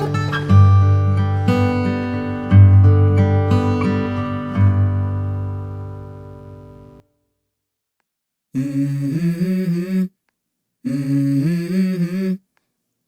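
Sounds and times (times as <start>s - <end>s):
low voice humming: 8.6s - 10.2s, 10.8s - 12.5s.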